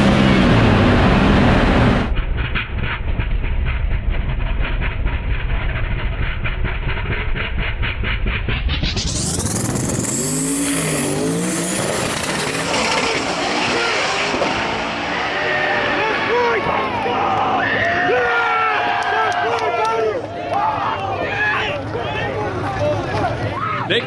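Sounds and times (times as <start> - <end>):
race cars at full throttle: 0.0 - 2.4, 4.3 - 24.0
crowd cheering and shouting: 11.8 - 24.0.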